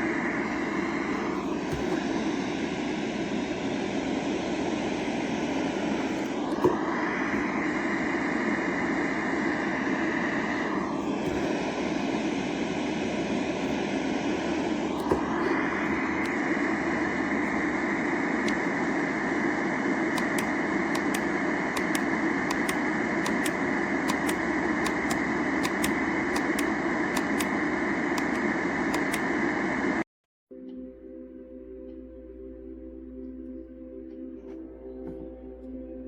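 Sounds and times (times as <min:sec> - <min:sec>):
switch click: 0:18.4 - 0:19.0, 0:20.1 - 0:27.6, 0:28.2 - 0:29.4.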